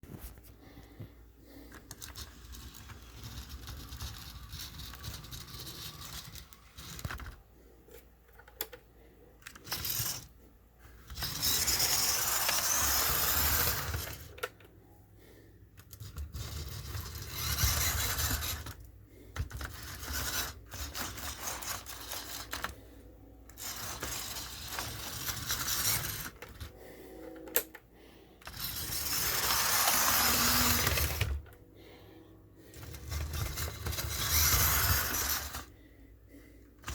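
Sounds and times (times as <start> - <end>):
model train rattling whir: 1.8 - 7.4, 9.5 - 10.3, 11.1 - 14.5, 15.8 - 22.8, 23.5 - 26.7, 28.4 - 31.5, 32.7 - 35.7.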